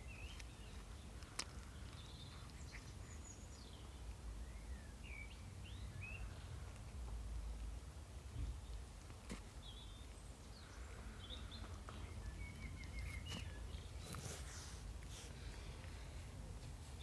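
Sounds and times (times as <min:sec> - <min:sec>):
faint bird chirps: 0:09.6 - 0:14.2.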